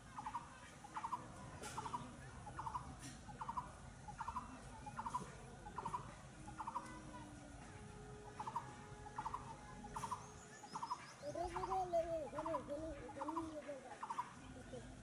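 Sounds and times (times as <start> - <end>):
faint low rumble of passing train: 3.4 - 13.1.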